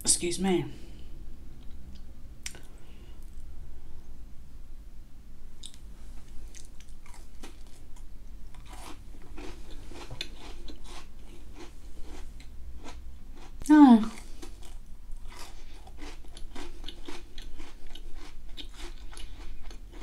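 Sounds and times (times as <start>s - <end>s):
crunchy biscuit chewing: 5.6s - 20.0s.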